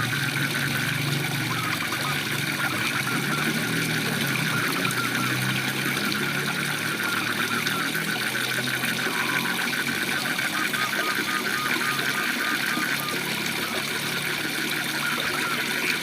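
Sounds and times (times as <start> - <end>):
frogs calling in a trill: 0.0 - 16.0.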